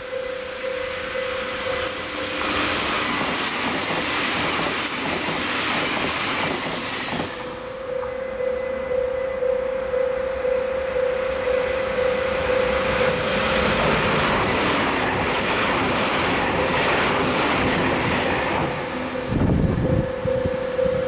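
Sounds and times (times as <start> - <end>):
train passing at speed: 0.0 - 21.0
wind buffeting microphone: 13.8 - 21.0.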